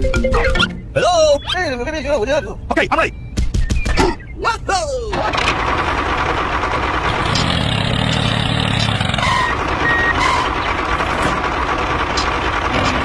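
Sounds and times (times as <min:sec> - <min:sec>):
short beeps: 0:03.0 - 0:04.4
tractor motor running: 0:05.1 - 0:13.0.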